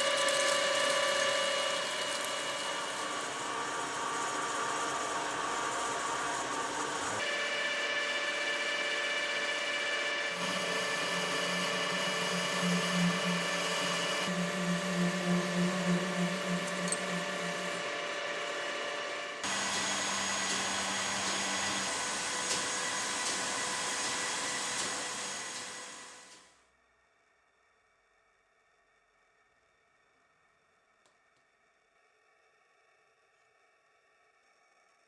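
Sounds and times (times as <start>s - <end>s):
milling machine whine: 0.0s - 26.4s.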